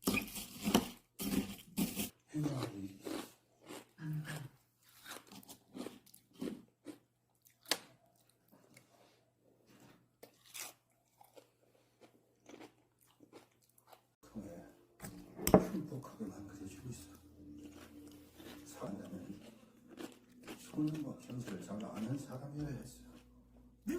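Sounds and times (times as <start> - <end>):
person biting and chewing: 0.0 - 4.0, 4.8 - 8.9, 9.8 - 14.1, 17.2 - 23.6.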